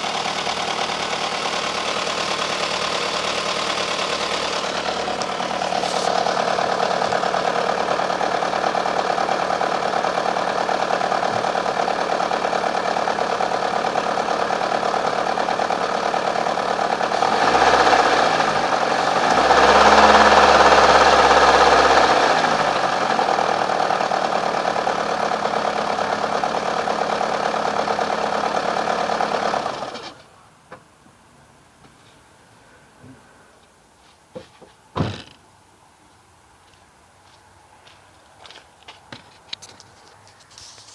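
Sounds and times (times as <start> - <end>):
engine revving: 0.0 - 30.2
car engine idling unevenly: 0.0 - 35.5.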